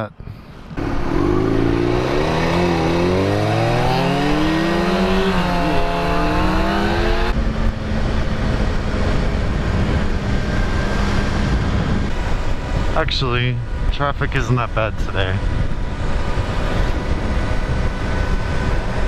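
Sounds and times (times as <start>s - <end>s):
wind rush over microphone: 0.6s - 14.4s, 15.0s - 19.0s
motorcycle engine accelerating: 0.7s - 13.0s.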